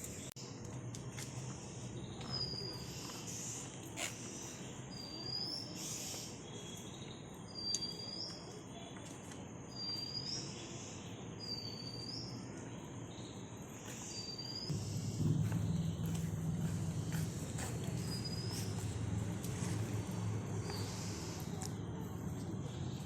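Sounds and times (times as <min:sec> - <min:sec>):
steady outdoor hiss: 0:00.0 - 0:23.0
low hum: 0:14.7 - 0:21.6
bird whistled call: 0:17.4 - 0:19.0.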